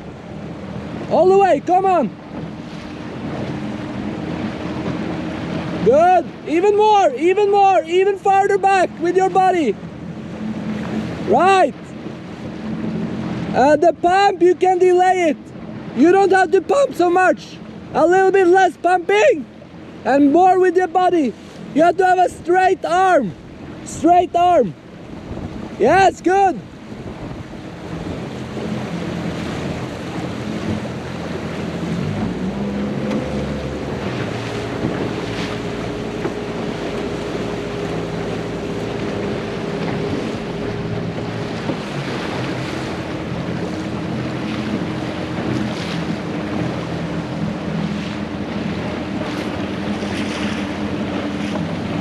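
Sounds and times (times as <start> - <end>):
motorboat engine: 0.0 - 52.0
water splashing past hull: 0.0 - 52.0
wind over microphone: 19.2 - 52.0.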